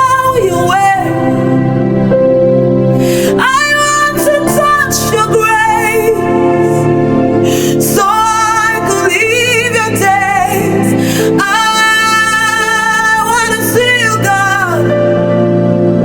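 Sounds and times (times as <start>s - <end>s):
sustained instrumental chords: 0.0s - 16.0s.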